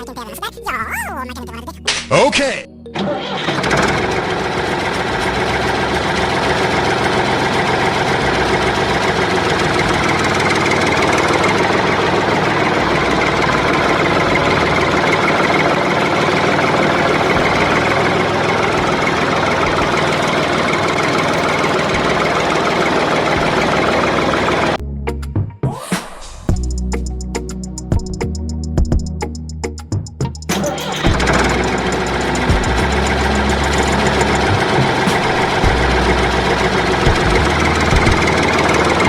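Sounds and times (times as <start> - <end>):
tractor engine pulsing: 2.9 - 24.8, 30.5 - 39.0.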